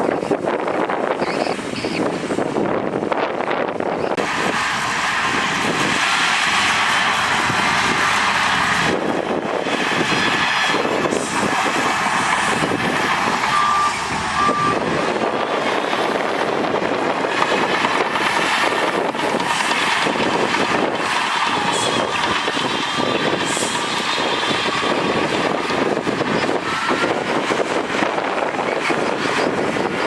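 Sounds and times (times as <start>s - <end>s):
heavy machinery running: 4.1s - 30.0s
reversing alarm beeping: 12.4s - 15.6s.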